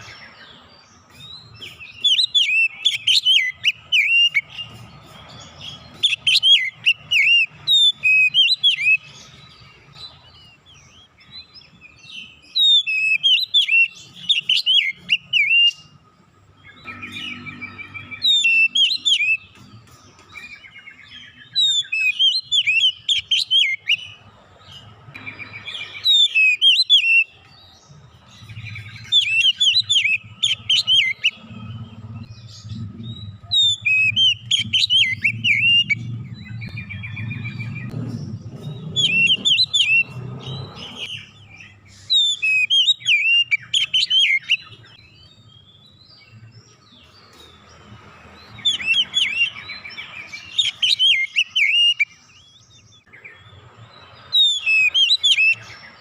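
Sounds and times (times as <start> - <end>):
magpie-robin singing: 0.0 - 56.0
low hum: 30.2 - 41.1.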